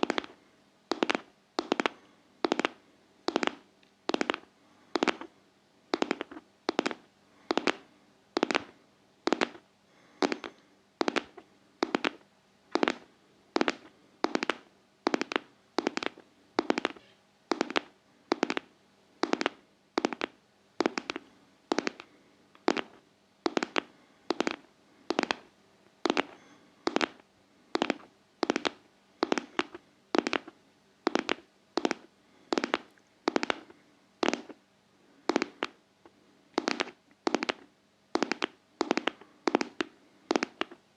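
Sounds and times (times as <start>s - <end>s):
double tapping in heartbeat rhythm: 0.0s - 0.3s, 0.9s - 4.4s, 5.9s - 7.8s, 10.2s - 25.4s, 38.2s - 40.8s.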